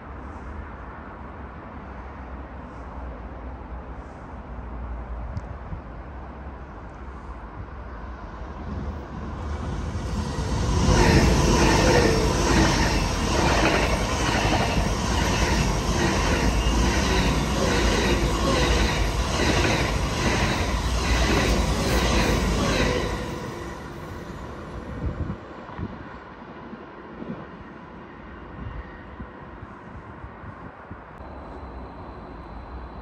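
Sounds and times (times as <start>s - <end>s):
train wheels rumbling on rails: 6.8s - 26.0s.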